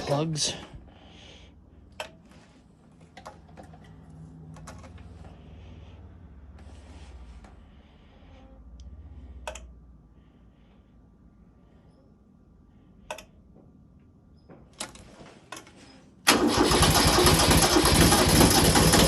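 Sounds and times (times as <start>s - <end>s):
starter cranking diesel engine: 16.2s - 19.0s.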